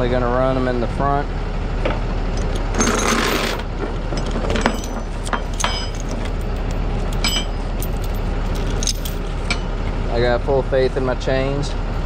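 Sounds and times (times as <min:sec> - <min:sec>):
low engine hum: 0:00.0 - 0:12.0
steel chains clinking: 0:02.4 - 0:09.8.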